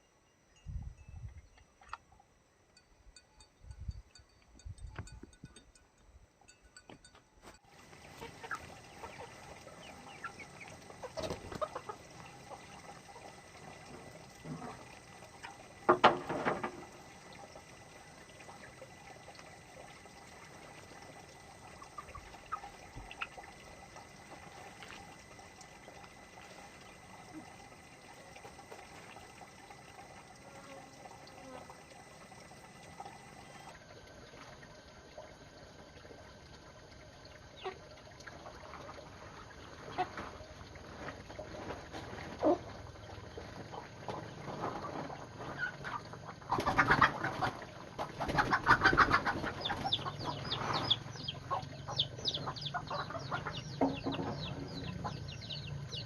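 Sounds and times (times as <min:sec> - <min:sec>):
chickens clucking: 0:07.8 - 0:16.9, 0:21.6 - 0:25.2, 0:43.6 - 0:56.0.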